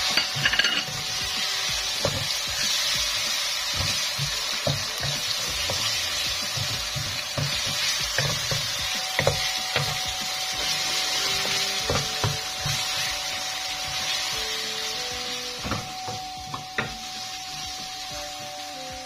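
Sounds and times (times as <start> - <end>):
spatula scraping and knocking pan: 0.0 - 13.2
onions sizzling in hot oil: 0.0 - 19.0.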